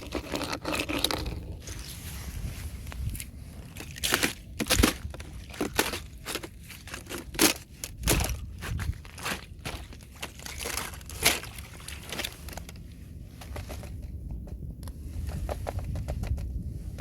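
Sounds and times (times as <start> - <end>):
thin ice cracking: 0.0 - 1.8, 3.0 - 12.8.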